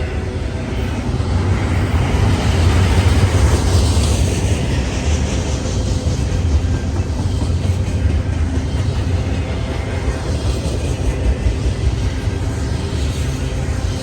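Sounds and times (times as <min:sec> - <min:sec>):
passing train rumbling: 0:00.0 - 0:14.0.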